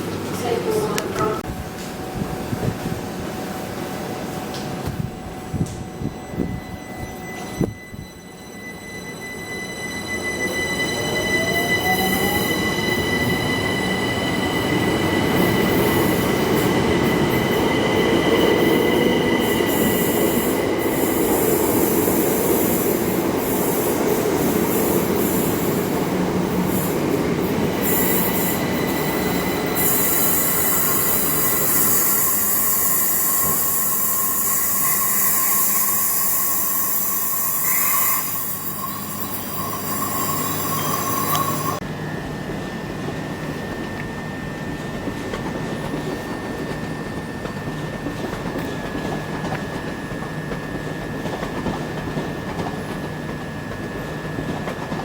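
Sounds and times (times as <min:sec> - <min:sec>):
rising whine: 0:05.0 - 0:21.1
high-pitched wheel squeal: 0:06.1 - 0:21.2, 0:27.8 - 0:41.8
train wheels rumbling on rails: 0:09.5 - 0:55.0.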